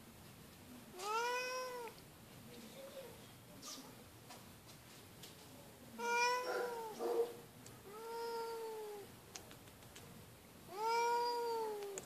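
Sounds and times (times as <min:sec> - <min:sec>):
cat meowing loudly: 0:01.0 - 0:02.0, 0:06.0 - 0:07.0, 0:07.9 - 0:09.1, 0:10.7 - 0:12.0.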